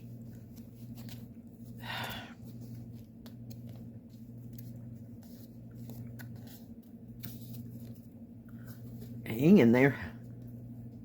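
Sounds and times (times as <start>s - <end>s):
rustling and clicks of handling: 0.0s - 1.8s, 2.4s - 9.3s
steady low hum: 0.0s - 11.0s.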